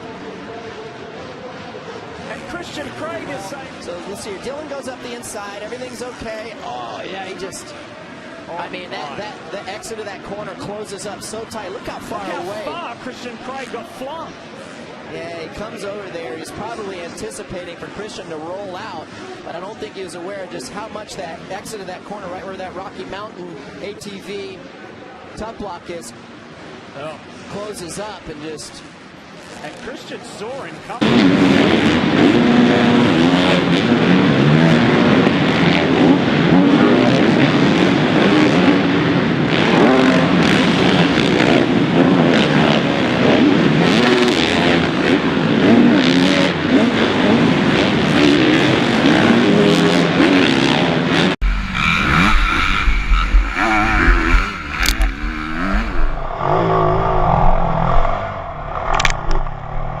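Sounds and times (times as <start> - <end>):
motocross bike engines revving: 0.0 - 24.4, 28.7 - 60.0
heavy low rumble: 51.4 - 60.0.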